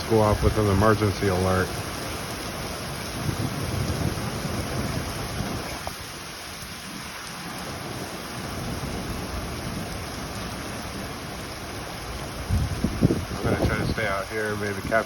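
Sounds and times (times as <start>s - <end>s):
low thunder rumble: 0.0s - 15.0s
rain: 0.0s - 15.0s
wind: 0.0s - 15.0s.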